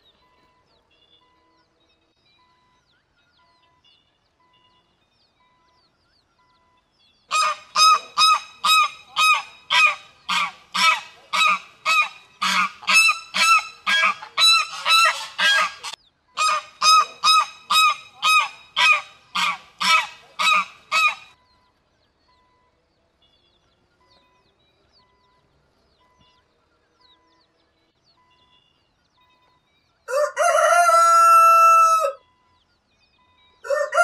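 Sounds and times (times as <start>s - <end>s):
waterfowl honking: 7.3s - 21.4s, 30.1s - 32.2s.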